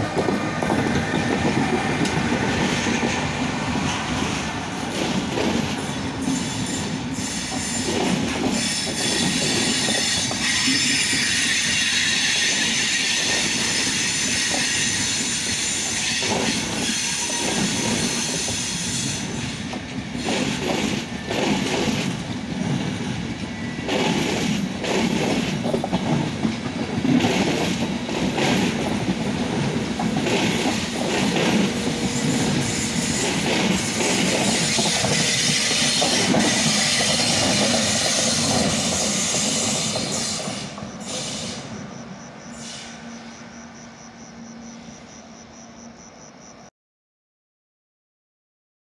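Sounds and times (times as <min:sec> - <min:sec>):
electric locomotive passing: 0:00.0 - 0:46.6
high wheel squeal: 0:06.2 - 0:20.4, 0:32.0 - 0:41.8.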